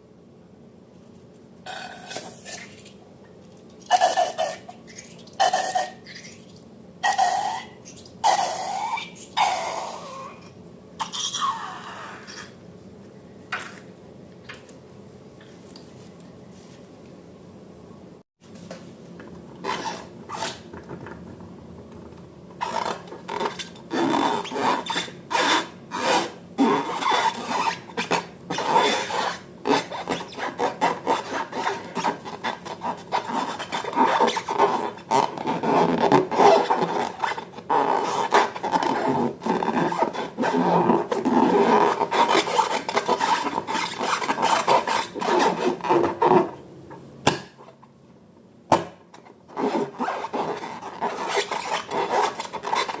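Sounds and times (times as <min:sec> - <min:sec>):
utensil stirring slime: 0:01.7 - 0:09.4, 0:19.5 - 0:46.5, 0:49.3 - 0:53.0.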